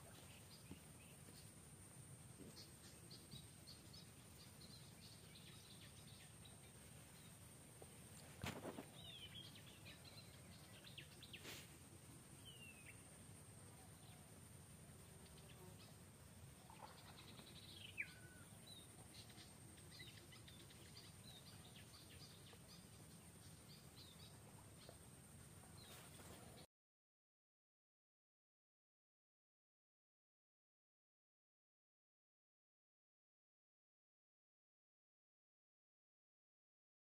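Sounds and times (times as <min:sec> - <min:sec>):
bird chirps: 0:16.6 - 0:25.0.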